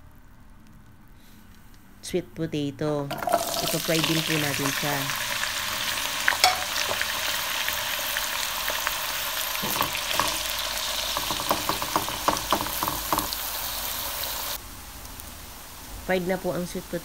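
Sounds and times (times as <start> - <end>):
food frying in hot oil: 3.1 - 17.0
spatula knocking and scraping pan: 6.4 - 7.1, 9.6 - 13.4.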